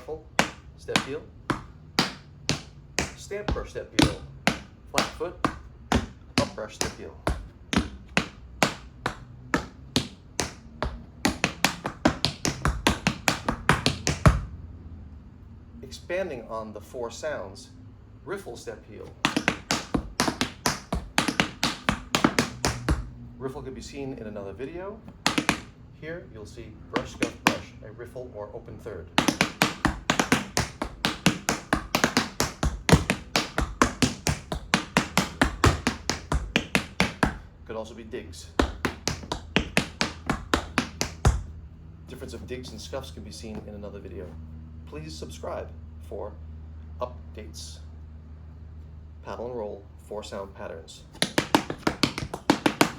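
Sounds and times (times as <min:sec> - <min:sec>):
tap shoes on hard floor: 0:00.0 - 0:14.5, 0:19.1 - 0:23.2, 0:25.1 - 0:25.8, 0:27.0 - 0:27.7, 0:29.1 - 0:37.5, 0:38.5 - 0:43.8, 0:51.1 - 0:52.9.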